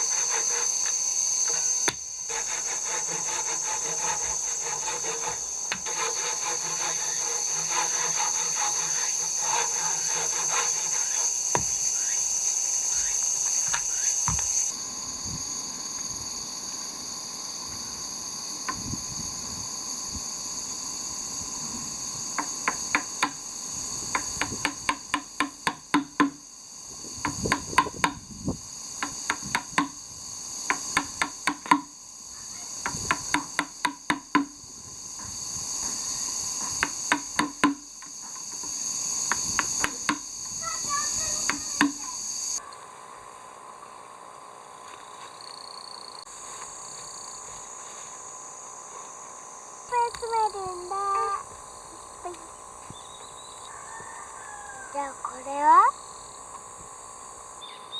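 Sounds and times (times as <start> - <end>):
wood being scraped by hand: 0.0 - 14.7, 22.2 - 26.4, 27.0 - 30.0, 30.6 - 32.0, 32.8 - 42.3
high insect chorus: 0.0 - 57.9.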